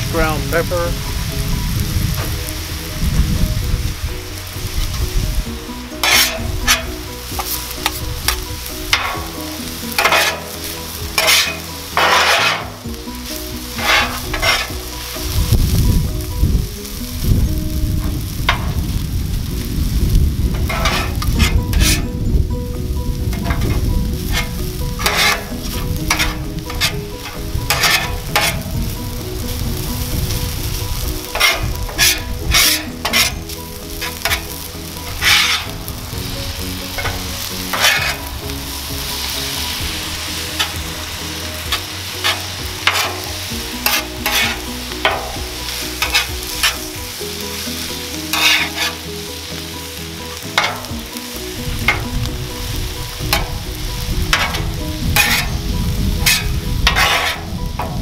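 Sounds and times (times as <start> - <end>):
rice sizzling on a griddle: 0.0 - 58.0
metal spatulas scraping griddle: 5.8 - 15.4, 20.6 - 22.2, 23.3 - 49.7, 50.3 - 52.2, 53.1 - 53.7, 54.3 - 58.0.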